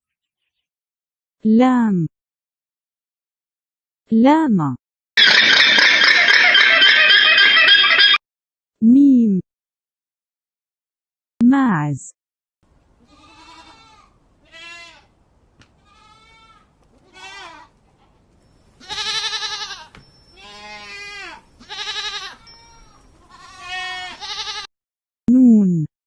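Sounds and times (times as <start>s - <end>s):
goats bleating: 13.0s - 15.2s, 15.8s - 18.2s, 18.8s - 24.7s.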